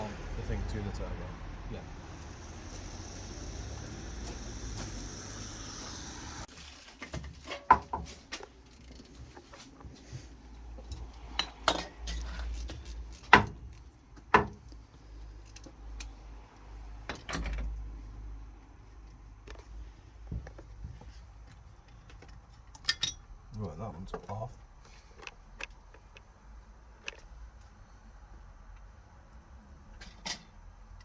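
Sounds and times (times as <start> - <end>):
metal tools clinking and knocking: 10.9 - 12.9, 22.7 - 23.3.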